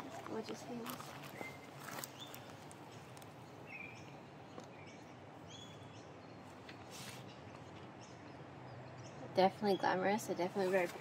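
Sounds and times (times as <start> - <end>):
bird chirps: 1.3 - 6.5.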